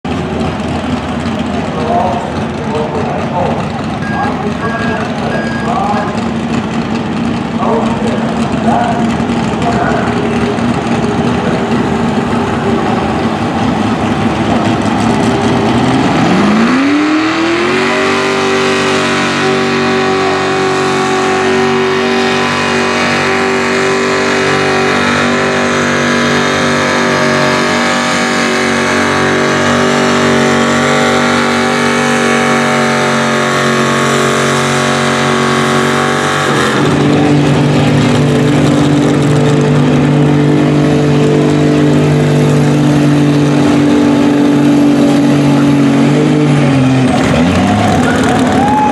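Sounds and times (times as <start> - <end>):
small engine revving: 43.6 - 48.9.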